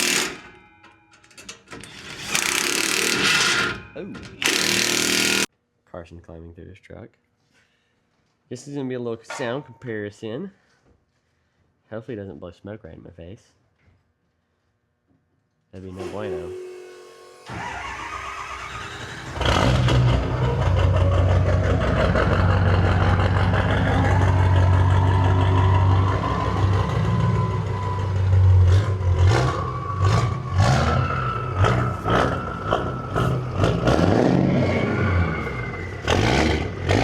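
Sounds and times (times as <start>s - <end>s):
diesel engine cranking: 1.7s - 5.5s, 16.0s - 37.0s
turbo whine: 16.0s - 19.5s
diesel engine idling and revving: 17.5s - 37.0s.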